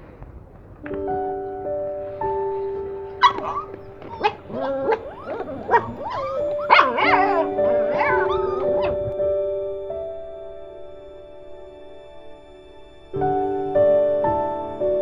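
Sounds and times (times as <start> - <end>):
background music with sustained tones: 0.8 - 15.0
puppies whining and yelping: 2.5 - 9.2.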